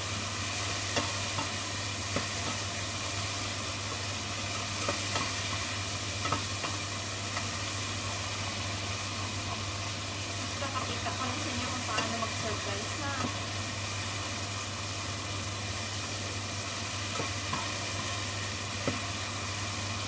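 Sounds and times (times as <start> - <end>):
shrimp sizzling in oil: 0.0 - 20.0
spatula scraping and tapping pan: 0.9 - 2.7, 3.9 - 7.6, 11.8 - 12.3, 17.1 - 18.1.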